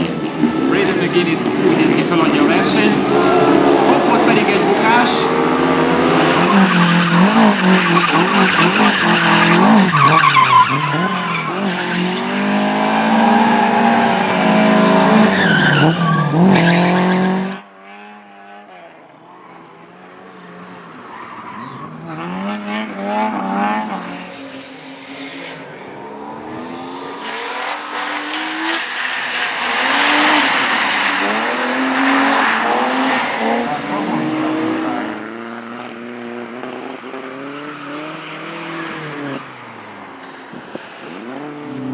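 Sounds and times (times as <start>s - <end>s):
approaching car: 0.0s - 41.9s
race car engine revving: 0.0s - 41.9s
tyre squeal: 6.2s - 17.6s, 19.2s - 36.0s.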